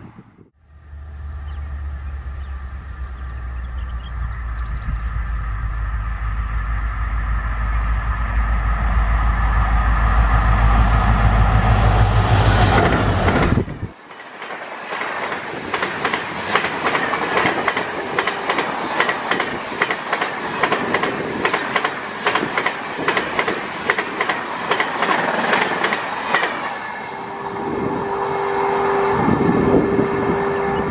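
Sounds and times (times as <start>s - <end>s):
diesel locomotive rumbling: 0.0s - 30.9s
train wheels clickety-clack: 9.8s - 26.8s.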